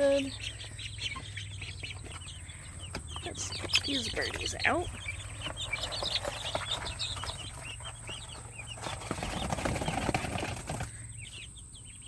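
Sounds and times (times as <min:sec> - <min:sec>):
chicks peeping: 0:00.0 - 0:12.0
wing flapping and rustling: 0:05.4 - 0:11.0.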